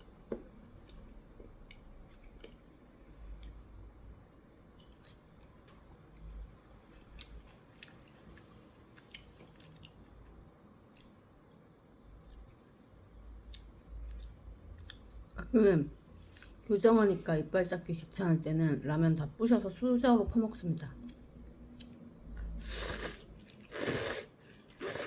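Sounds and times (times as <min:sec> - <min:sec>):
person chewing noodles: 0:00.0 - 0:03.8, 0:04.6 - 0:11.6, 0:13.4 - 0:15.0, 0:21.1 - 0:25.0
hiss: 0:22.6 - 0:25.0.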